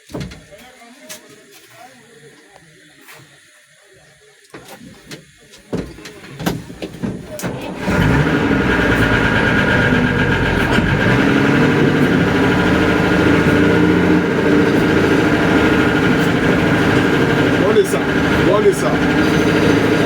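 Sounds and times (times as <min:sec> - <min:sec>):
engine starting and running: 0:07.4 - 0:20.0
engine knocking: 0:07.6 - 0:20.0.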